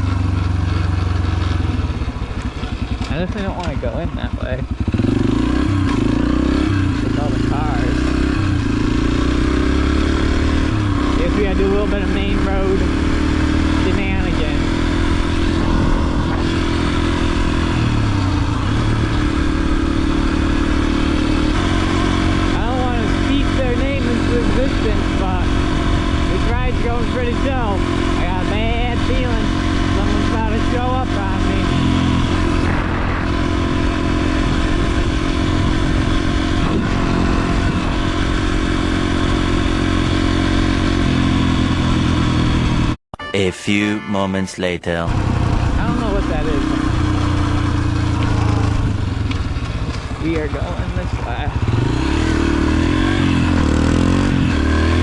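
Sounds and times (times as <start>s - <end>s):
motorcycle engine running: 0.0s - 43.0s, 45.1s - 55.0s.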